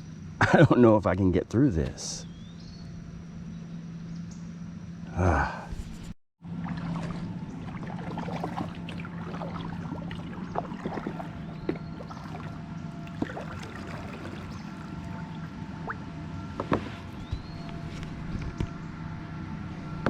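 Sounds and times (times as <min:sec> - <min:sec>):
low hum: 0:00.0 - 0:20.0
water splashing around paddle: 0:06.4 - 0:18.8.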